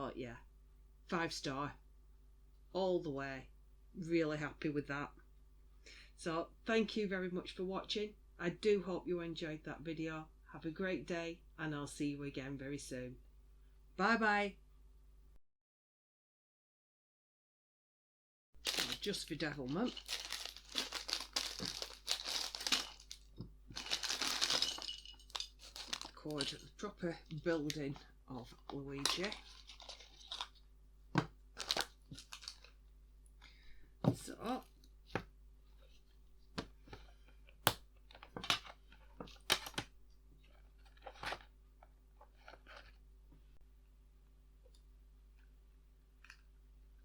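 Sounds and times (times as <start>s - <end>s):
plastic packaging crinkling: 18.6s - 30.6s, 31.6s - 32.8s
plastic parts clicking: 37.6s - 39.9s.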